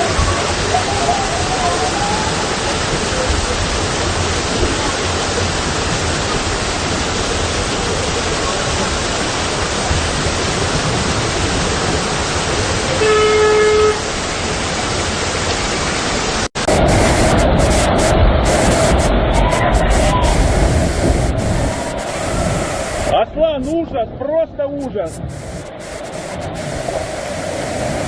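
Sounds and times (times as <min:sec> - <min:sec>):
heavy rain and rushing floodwater: 0:00.0 - 0:28.0
car horn honk: 0:12.9 - 0:14.1.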